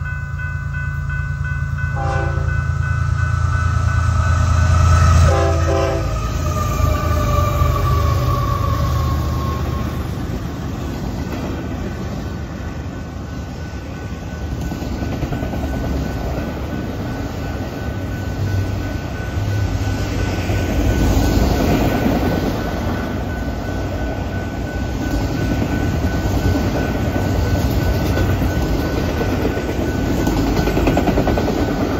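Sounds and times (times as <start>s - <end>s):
freight train rumble: 0.0s - 31.9s
train horn: 1.9s - 2.7s, 4.2s - 10.3s.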